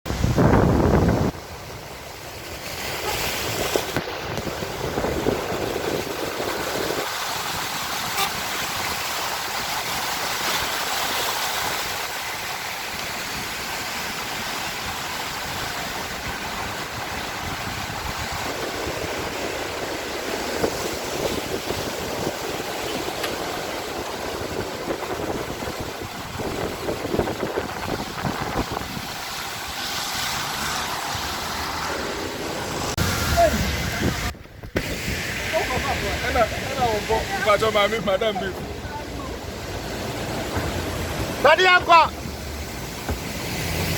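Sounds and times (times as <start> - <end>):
steady rushing noise: 0.1 - 43.9
car horns tooting: 7.9 - 8.9, 41.4 - 42.2
vehicles running: 27.7 - 43.9.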